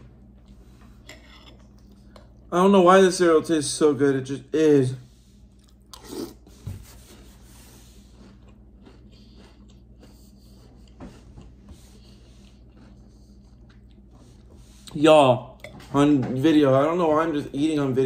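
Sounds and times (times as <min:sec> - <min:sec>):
quiet chewing of cereal: 0:00.2 - 0:02.5, 0:05.3 - 0:15.0.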